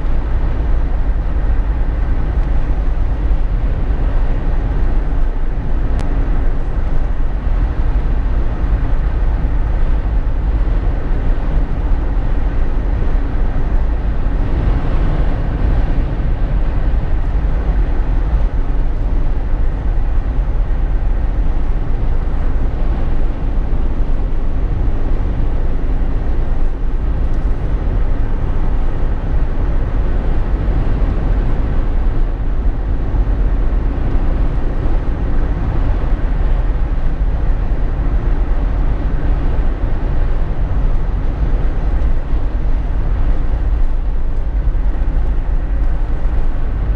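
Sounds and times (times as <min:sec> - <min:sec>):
car cabin road noise: 0:00.0 - 0:46.9.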